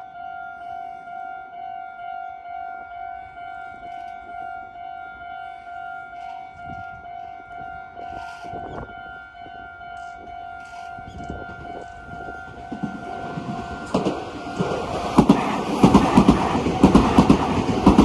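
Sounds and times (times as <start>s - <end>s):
electric train wheels clattering: 5.5s - 18.0s.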